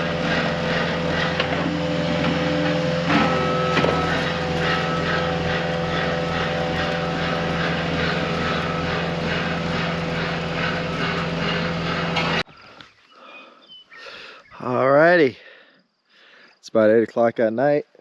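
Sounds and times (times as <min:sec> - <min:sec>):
diesel engine running: 0:00.0 - 0:12.8.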